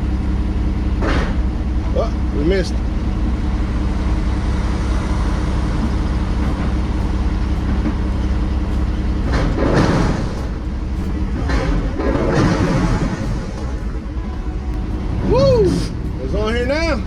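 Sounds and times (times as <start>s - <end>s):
diesel truck engine idling: 0.0s - 17.0s
loud burst of noise: 9.2s - 16.2s.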